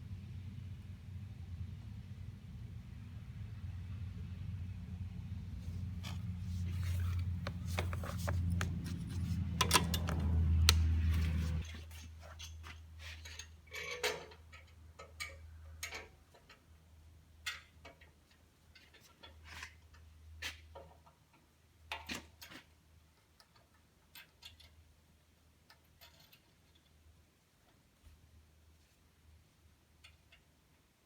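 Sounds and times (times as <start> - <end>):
light clicks of tools: 6.0 - 11.6.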